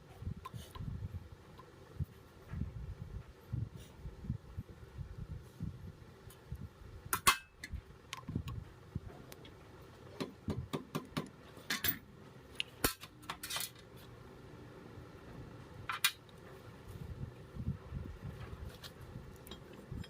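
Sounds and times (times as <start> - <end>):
metal tools clinking and knocking: 11.6 - 12.1.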